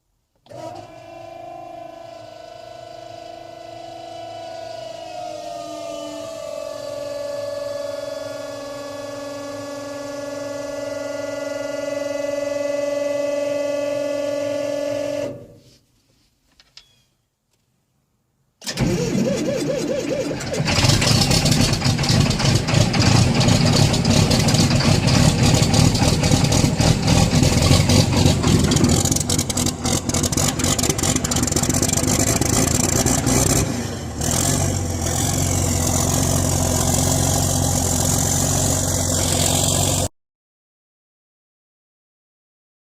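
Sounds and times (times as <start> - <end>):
diesel engine starting and running: 0.0 - 15.5, 18.6 - 40.1
steady pitched drone: 21.1 - 40.1.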